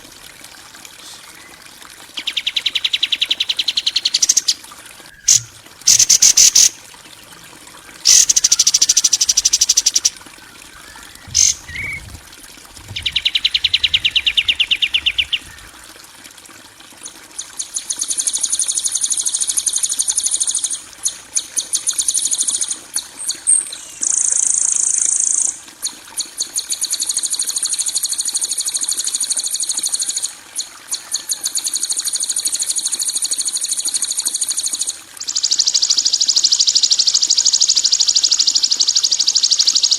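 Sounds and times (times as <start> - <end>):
high-pitched bird trills: 2.2 - 6.8, 8.0 - 12.1.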